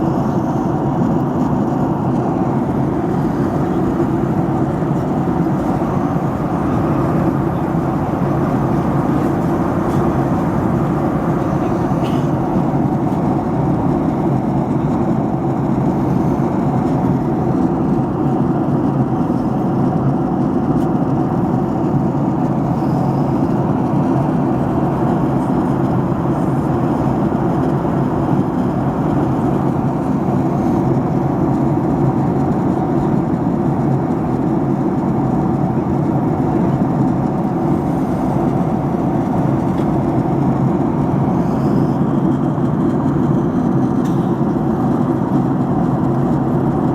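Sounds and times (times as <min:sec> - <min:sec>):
airliner cabin hum: 0:00.0 - 0:46.9
faint steady tones: 0:02.4 - 0:12.7.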